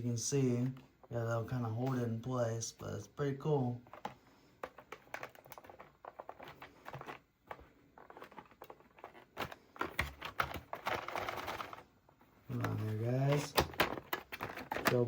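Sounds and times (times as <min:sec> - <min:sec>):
packaging clicking and rustling: 0:03.8 - 0:11.9, 0:12.5 - 0:15.0
packaging crinkling: 0:04.6 - 0:11.8, 0:12.5 - 0:15.0.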